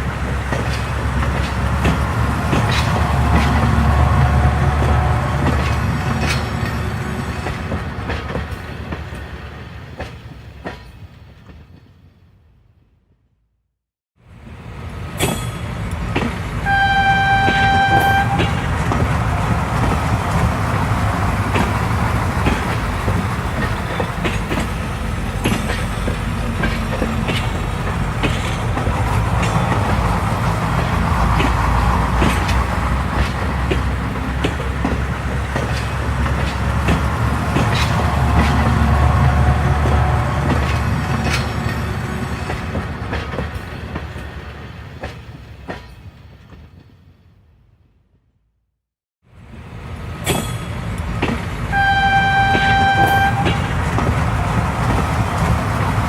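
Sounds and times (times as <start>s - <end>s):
train rumbling on rails: 0.0s - 12.9s, 14.2s - 48.2s, 49.3s - 56.0s
train horn blast: 2.9s - 5.9s, 16.6s - 18.9s, 37.6s - 40.9s, 51.7s - 53.8s
wheels clicking over track: 17.4s - 44.3s.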